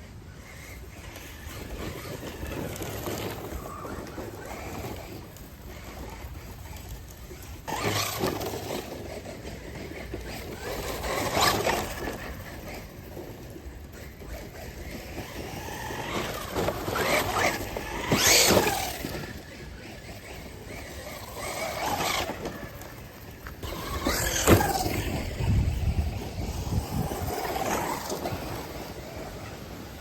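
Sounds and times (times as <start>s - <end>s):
rc speedboat running on water: 0.0s - 30.0s.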